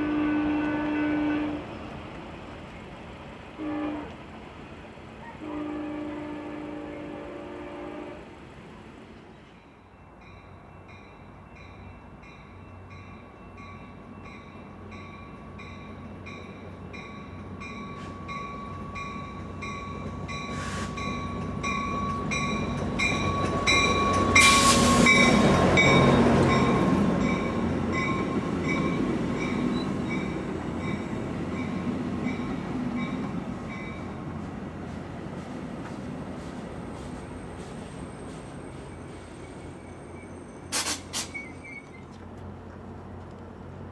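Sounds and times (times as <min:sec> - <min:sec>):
train horn chord: 0:00.0 - 0:01.8, 0:03.6 - 0:04.3, 0:05.2 - 0:08.3
passenger train passing: 0:00.0 - 0:43.9
railroad crossing bell ringing: 0:09.6 - 0:34.2.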